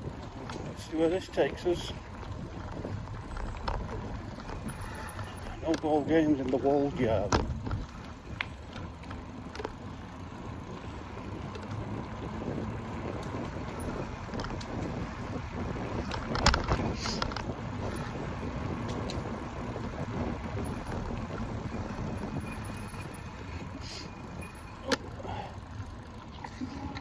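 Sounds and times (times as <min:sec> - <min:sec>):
e-bike low rumble: 0:00.0 - 0:27.0
tyre noise: 0:00.0 - 0:27.0
wind on microphone: 0:11.9 - 0:23.2.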